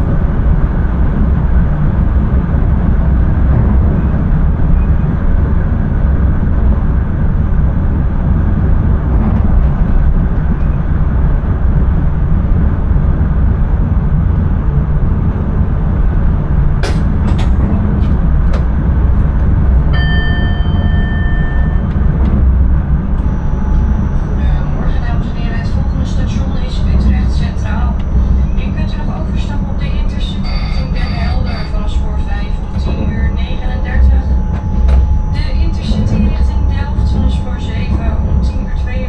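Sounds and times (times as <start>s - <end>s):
train rumbling: 0.0s - 39.0s
steady beep tone: 20.0s - 39.0s.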